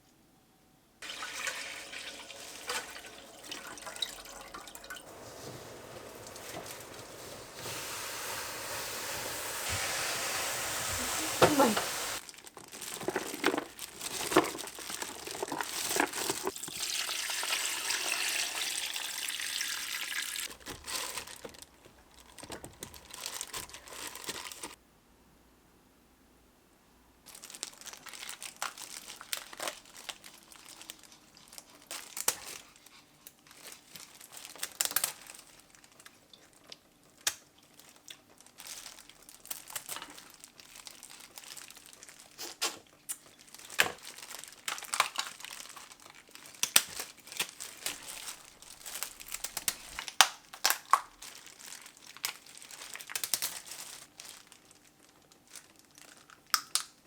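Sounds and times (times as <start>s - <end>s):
steady hiss: 5.0s - 12.2s
crinkling with sharp clicks: 27.3s - 57.0s.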